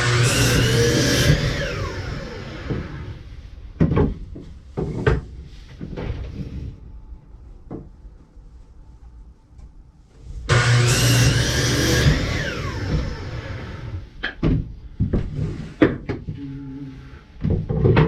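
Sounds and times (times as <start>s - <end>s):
power saw cutting wood: 0.0s - 3.1s, 10.5s - 14.0s
saw blade winding down whine: 0.0s - 3.1s, 10.5s - 14.0s.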